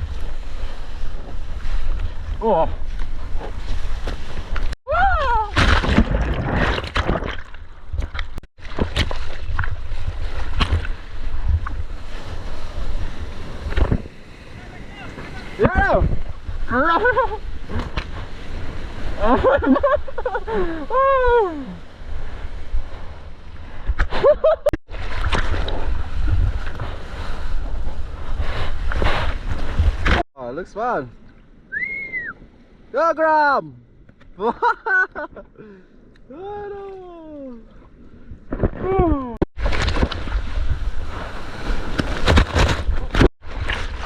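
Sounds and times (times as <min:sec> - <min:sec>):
water and wind buffeting microphone: 0:00.0 - 0:30.2, 0:34.8 - 0:44.0
person shouting: 0:04.9 - 0:05.6, 0:36.3 - 0:37.7
ocean surf rushing and splashing: 0:09.8 - 0:24.0, 0:39.6 - 0:44.0.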